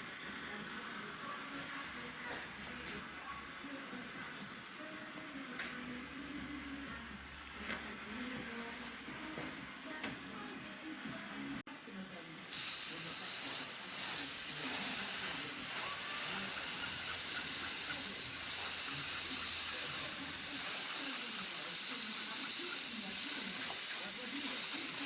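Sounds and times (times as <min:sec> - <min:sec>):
paint spray hiss: 0:12.5 - 0:25.0.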